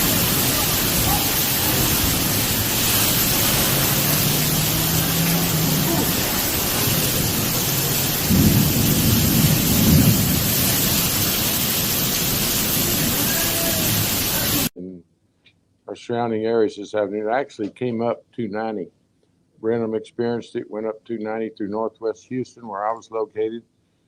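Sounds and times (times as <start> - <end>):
heavy rain: 0.0 - 14.7
thunder rumble: 0.0 - 14.7
wind noise: 0.0 - 14.7.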